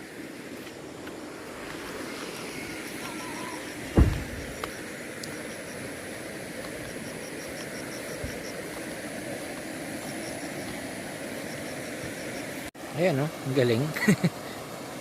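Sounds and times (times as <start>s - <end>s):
river water rushing: 0.0s - 15.0s
faint high chirps: 2.5s - 5.8s.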